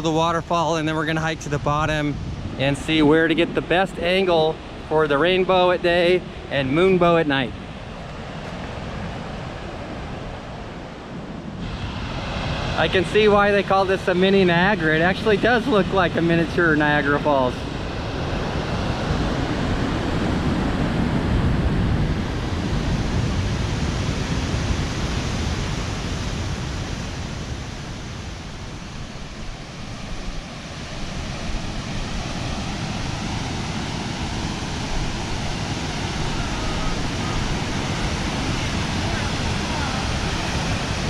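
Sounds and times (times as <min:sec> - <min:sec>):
waterfall rushing: 0:27.8 - 0:41.0.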